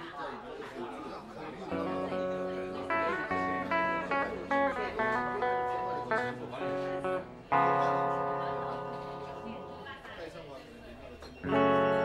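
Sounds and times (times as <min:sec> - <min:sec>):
guitar ballad: 0:01.7 - 0:10.0, 0:11.4 - 0:12.0.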